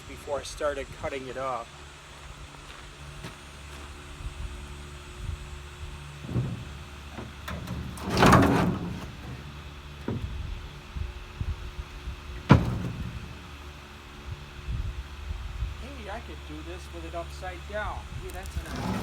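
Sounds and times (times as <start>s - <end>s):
metal scraping rattle: 5.9s - 11.0s, 12.2s - 14.2s, 18.3s - 19.0s.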